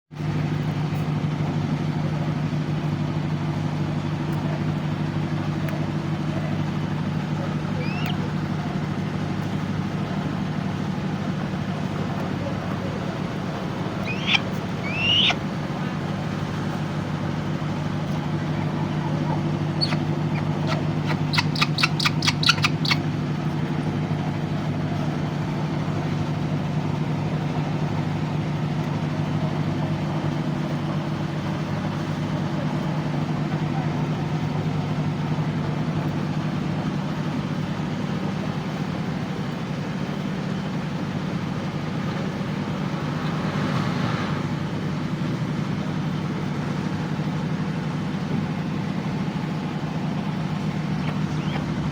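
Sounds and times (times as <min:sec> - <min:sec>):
low mechanical hum: 0:00.2 - 0:51.9
short rising squeak: 0:14.0 - 0:15.4.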